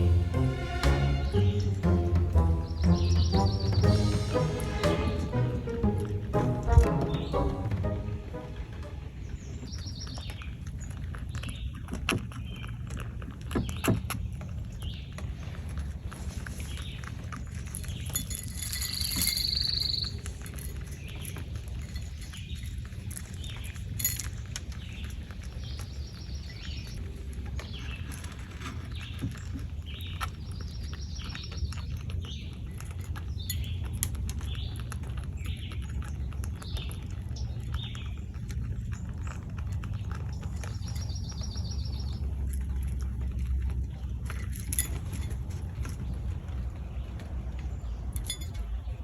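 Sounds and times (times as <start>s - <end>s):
birds chirping: 0.0s - 12.7s, 19.0s - 20.4s, 34.4s - 49.0s
steady low rumble: 42.1s - 49.0s.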